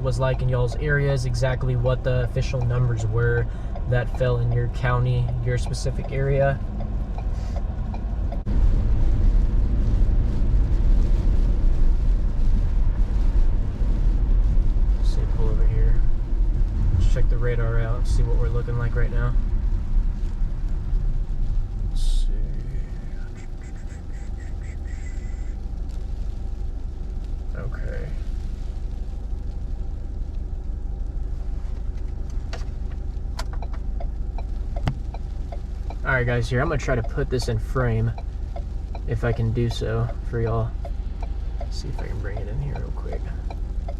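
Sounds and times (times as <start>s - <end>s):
car road and wind rumble: 0.0s - 43.9s.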